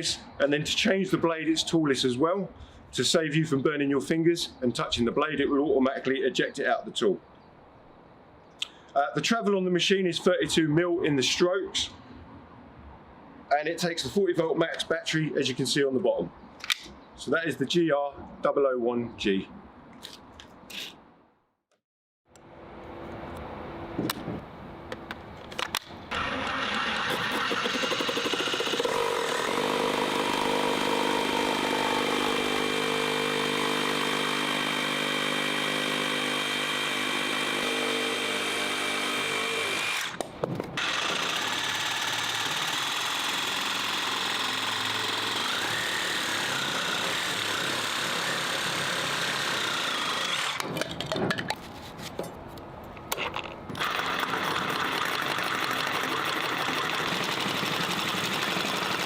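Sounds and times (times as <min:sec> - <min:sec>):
reciprocating saw motor whine: 0:26.1 - 0:40.2, 0:40.8 - 0:50.6.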